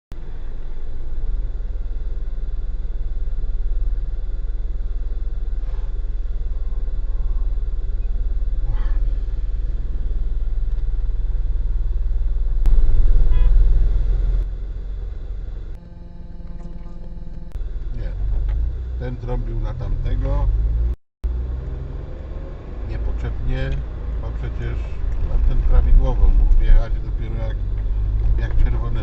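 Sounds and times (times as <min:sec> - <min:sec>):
car engine and road noise: 0:00.1 - 0:29.0.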